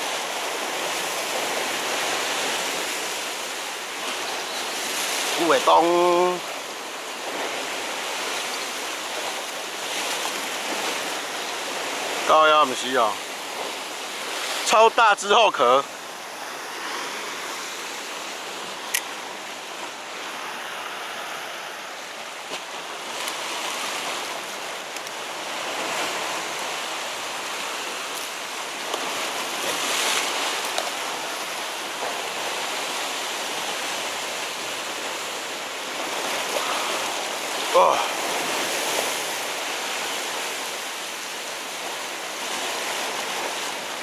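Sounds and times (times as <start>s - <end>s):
waves washing against rocks: 0.0s - 44.0s
sharp click: 18.9s - 19.1s.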